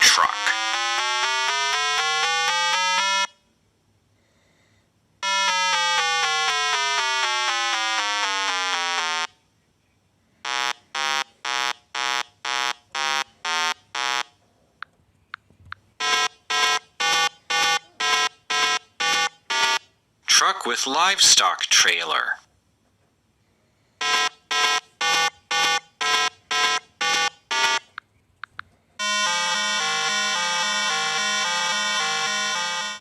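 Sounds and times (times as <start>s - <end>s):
falling buzzer tone: 0.0s - 3.4s, 5.2s - 9.4s, 10.4s - 14.4s, 16.0s - 19.9s, 24.0s - 28.0s, 29.0s - 33.0s
repeated warning beeps: 10.5s - 14.3s, 16.0s - 19.9s, 24.0s - 28.0s, 29.0s - 33.0s.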